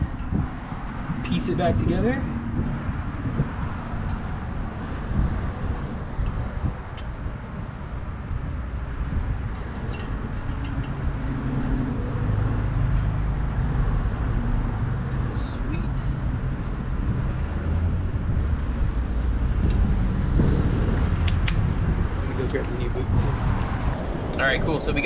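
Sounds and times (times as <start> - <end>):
low rumble of road traffic: 0.0 - 25.0
low vehicle hum: 0.0 - 25.0
light clicks of metal parts: 9.5 - 11.8, 12.9 - 13.4.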